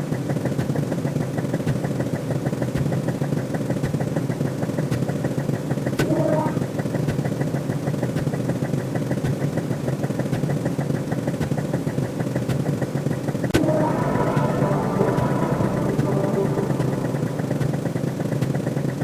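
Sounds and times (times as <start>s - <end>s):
low rumbling drone: 13.5s - 18.4s.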